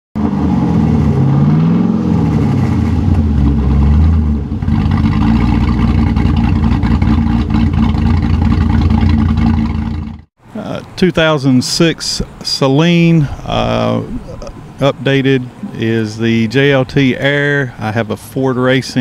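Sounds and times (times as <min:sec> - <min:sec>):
car engine revving and idling: 0:00.2 - 0:10.3.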